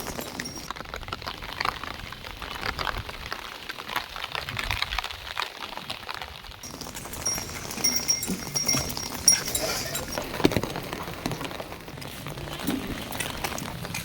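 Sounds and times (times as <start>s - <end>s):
heavy rain falling: 0.0s - 14.0s
animal calls: 6.8s - 10.5s.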